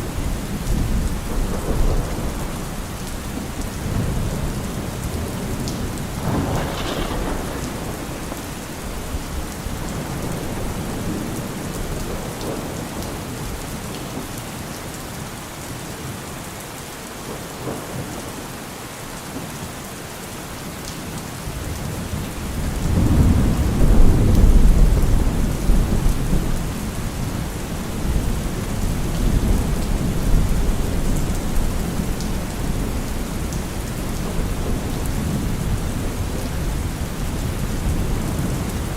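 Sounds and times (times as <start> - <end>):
thunder rumbling: 0.0 - 13.5, 22.5 - 38.9
heavy rain falling: 0.0 - 38.9.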